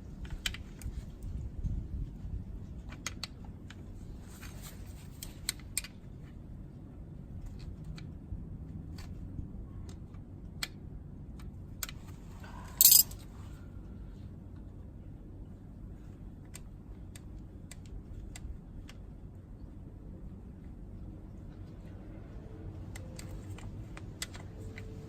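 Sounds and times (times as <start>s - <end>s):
metallic clicks of hand tools: 12.8s - 13.2s.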